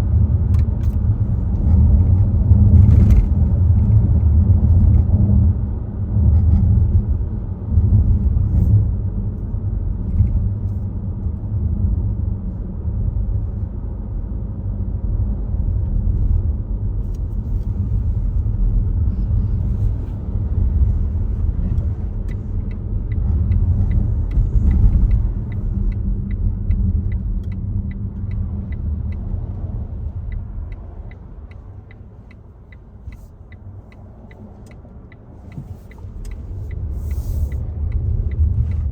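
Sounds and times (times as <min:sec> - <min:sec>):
road and tyre rumble: 0:00.0 - 0:38.9
turn signal ticking: 0:17.1 - 0:38.9.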